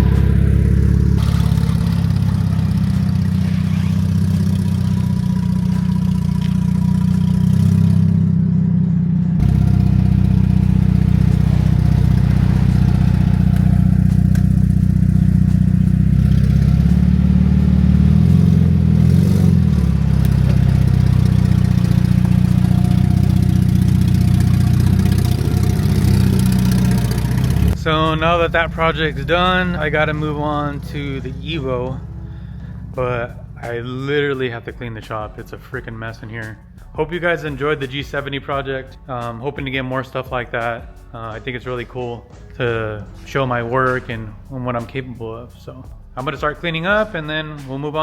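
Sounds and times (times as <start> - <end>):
car engine running at low revs: 0.0 - 35.5.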